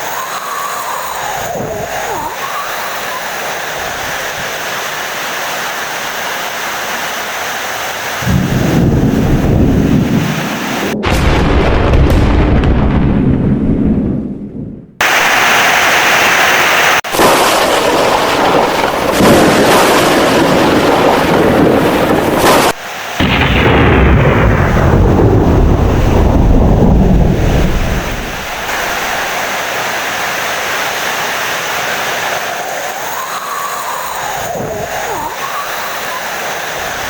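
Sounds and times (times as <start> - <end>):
heavy rain: 0.0 - 13.0, 15.0 - 37.0
rolling thunder: 8.2 - 15.3, 17.1 - 29.5.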